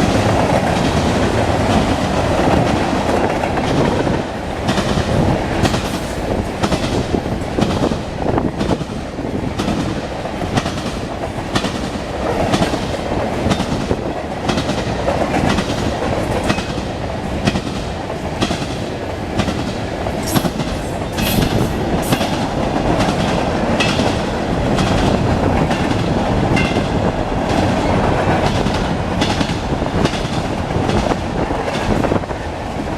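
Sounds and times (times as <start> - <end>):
freight train rumble: 0.0 - 32.9
train wheels clicking over rail joints: 0.0 - 32.9.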